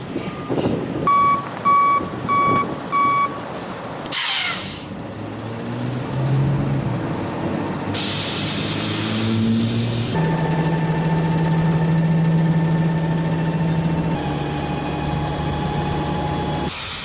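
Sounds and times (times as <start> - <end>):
engine low drone: 0.0 - 17.0
truck reversing alarm beeps: 0.4 - 3.5, 10.2 - 16.7
air hiss: 8.0 - 10.2.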